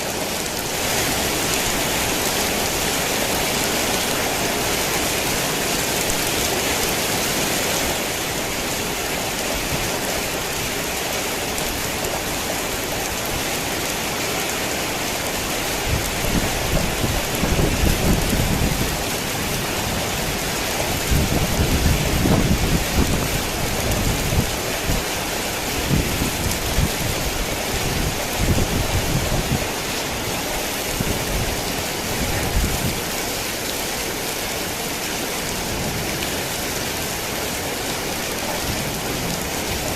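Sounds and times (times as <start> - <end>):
heavy rain falling: 0.0 - 39.9
thunder rumbling: 15.8 - 25.0.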